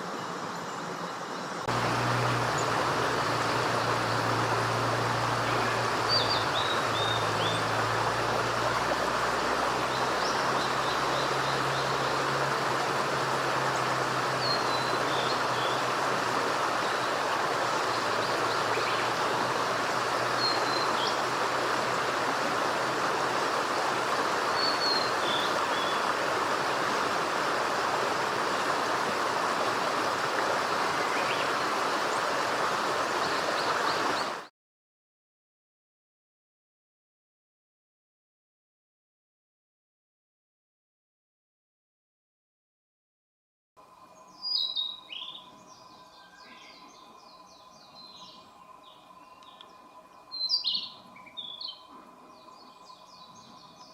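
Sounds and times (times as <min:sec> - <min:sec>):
running stream: 0:00.0 - 0:34.5, 0:43.8 - 0:53.9
distant vehicle hum: 0:01.6 - 0:34.4.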